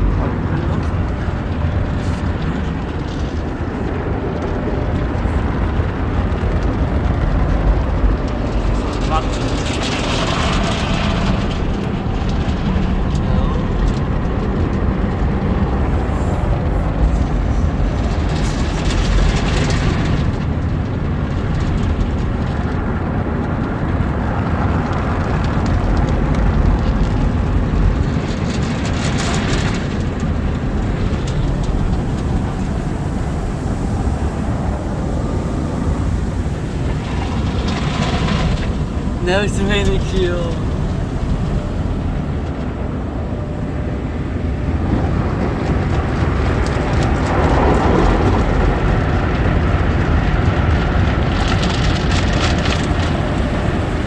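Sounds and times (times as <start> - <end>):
car wash water and brushes rumble: 0.0 - 54.0
hissing spray: 29.0 - 48.9, 52.2 - 54.0.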